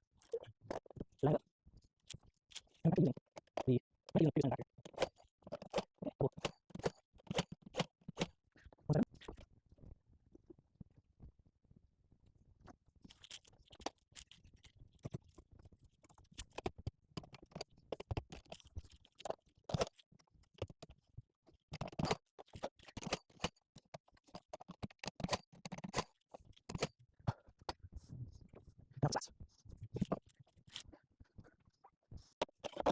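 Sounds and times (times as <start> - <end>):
hand tools clicking and scraping wood: 2.1 - 9.4, 13.1 - 27.8, 29.8 - 32.9.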